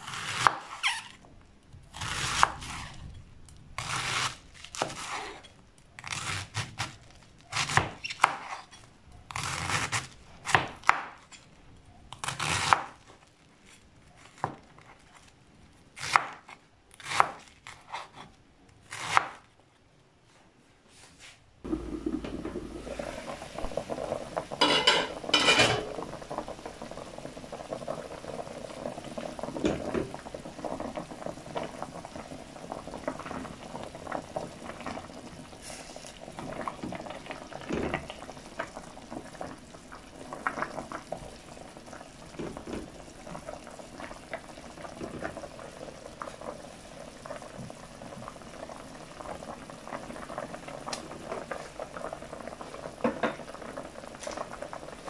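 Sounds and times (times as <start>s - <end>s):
water boiling in a pot: 0.0s - 11.6s, 21.6s - 55.0s
glass lid clanking: 24.6s - 26.0s.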